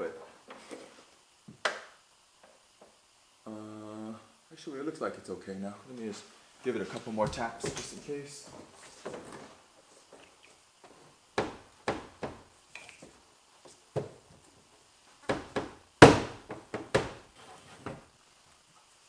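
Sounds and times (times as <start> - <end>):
knocks on car spoiler: 15.3 - 17.2.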